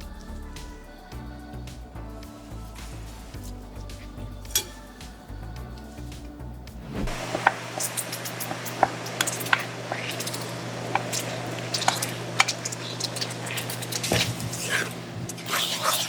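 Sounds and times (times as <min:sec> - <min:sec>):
steady low hum: 0:00.0 - 0:15.6
fried chicken crunching: 0:07.2 - 0:16.0.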